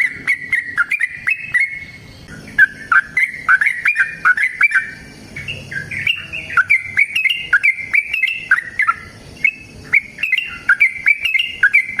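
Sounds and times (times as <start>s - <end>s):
bird singing bubbly chirps: 0.0s - 12.0s.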